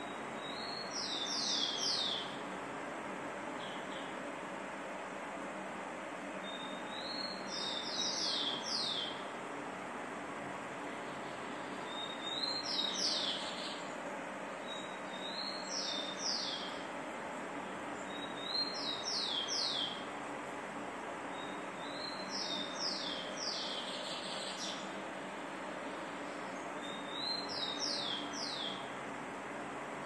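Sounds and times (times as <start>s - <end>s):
songbird singing: 0.0s - 2.5s, 3.5s - 4.3s, 6.3s - 9.3s, 10.8s - 17.0s, 17.6s - 20.4s, 21.2s - 29.2s.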